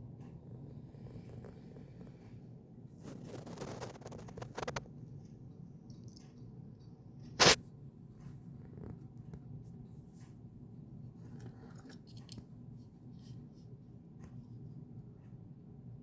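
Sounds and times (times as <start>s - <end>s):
sharp scrape or snap: 7.4s - 7.6s.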